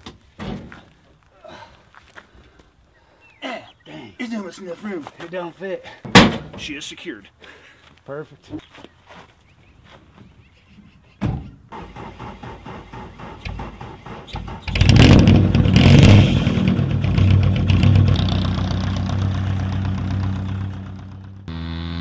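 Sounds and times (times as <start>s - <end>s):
aircraft engine cranking and starting: 11.7s - 17.0s.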